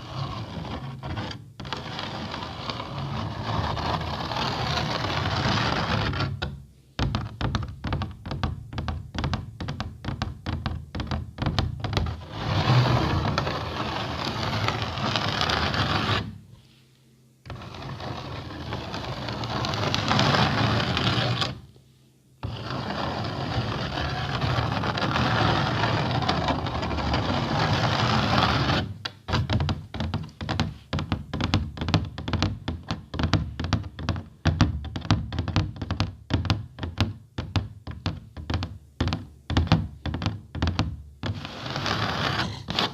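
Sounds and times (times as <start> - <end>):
scratching on an object: 0.0 - 16.8, 17.4 - 21.7, 22.4 - 37.1, 37.9 - 42.9.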